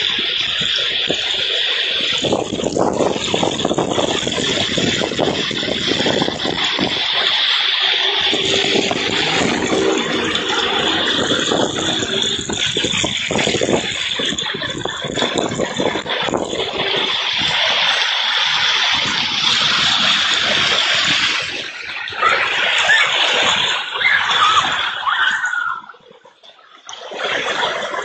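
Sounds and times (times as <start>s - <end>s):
heavy rain pouring: 0.0s - 24.8s
water gushing and splashing: 0.0s - 26.2s
raindrops drumming on hard surfaces: 2.1s - 18.0s.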